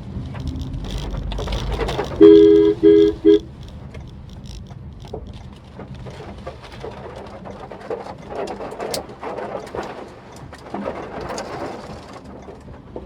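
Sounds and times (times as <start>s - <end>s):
low road noise: 0.0s - 13.0s
car horn honking: 2.1s - 3.6s.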